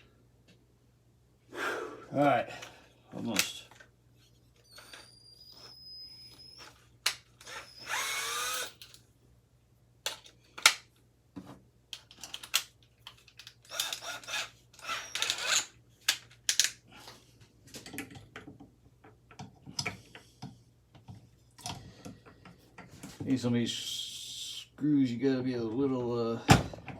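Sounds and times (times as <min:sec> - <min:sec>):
power drill whining: 0:04.6 - 0:06.8, 0:07.4 - 0:08.9, 0:13.7 - 0:15.7.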